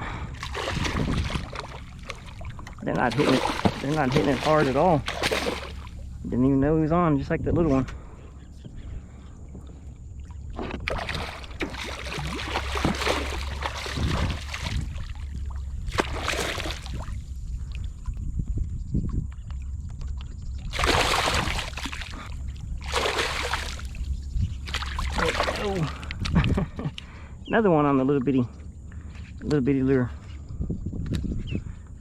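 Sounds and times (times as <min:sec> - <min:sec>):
water sloshing and splashing: 0:00.0 - 0:06.3, 0:09.4 - 0:18.2, 0:19.3 - 0:26.4
steady low rumble: 0:00.0 - 0:32.0.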